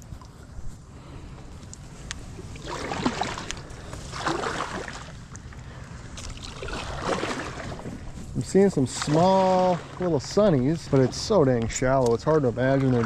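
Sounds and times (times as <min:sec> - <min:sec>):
paddle splashing in water: 0:02.4 - 0:13.0
wind on microphone: 0:06.0 - 0:12.8.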